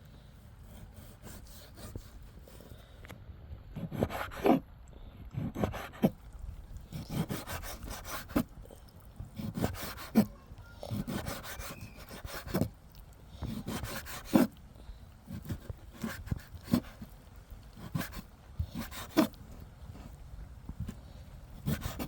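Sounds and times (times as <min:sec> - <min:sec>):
rough scraping strokes: 0:06.9 - 0:08.6, 0:09.4 - 0:10.3.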